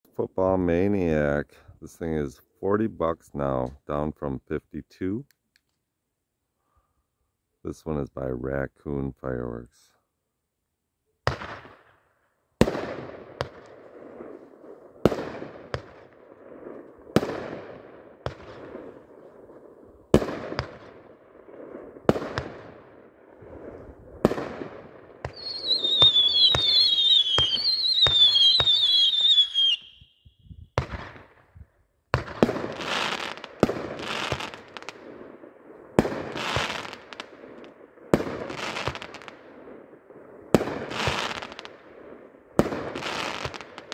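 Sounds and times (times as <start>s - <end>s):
firework shots with rush: 11.3s - 11.9s, 12.6s - 30.0s, 30.7s - 43.9s
whistling firework shots: 11.3s - 12.0s, 23.5s - 31.5s, 32.1s - 35.3s, 35.9s - 39.6s, 40.5s - 41.9s.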